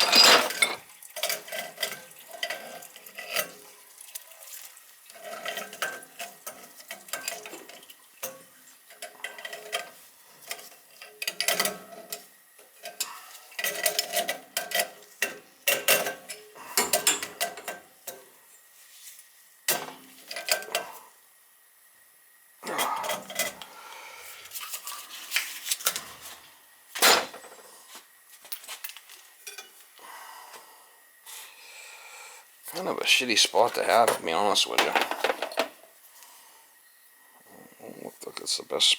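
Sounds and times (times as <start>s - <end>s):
metal tools clinking and clanking: 0.0s - 3.6s.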